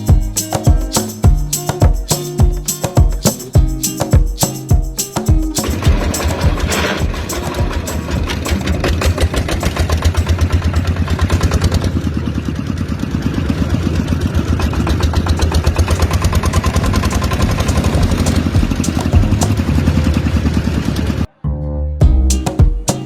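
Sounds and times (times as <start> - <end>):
small water pump engine running: 5.6 - 21.3.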